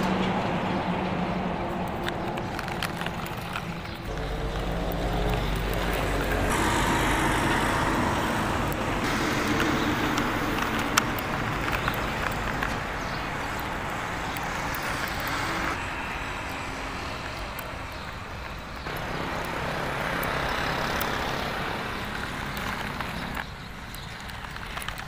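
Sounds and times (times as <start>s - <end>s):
vehicle running rumbling hiss: 1.3s - 23.4s.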